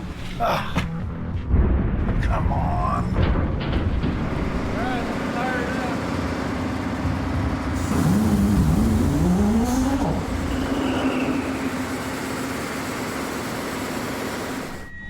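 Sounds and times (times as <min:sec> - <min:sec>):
diesel engine starting and running: 0:03.8 - 0:15.0.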